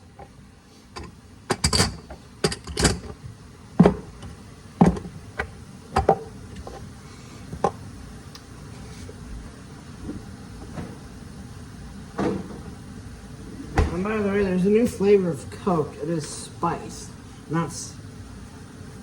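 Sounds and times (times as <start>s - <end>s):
kitchen utensils clattering: 1.0s - 3.2s.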